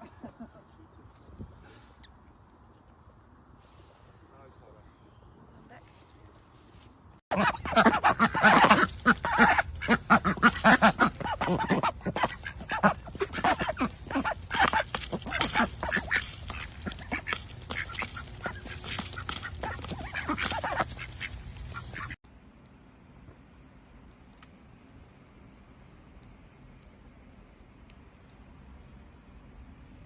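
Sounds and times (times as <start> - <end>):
ducks quacking: 7.3 - 22.2.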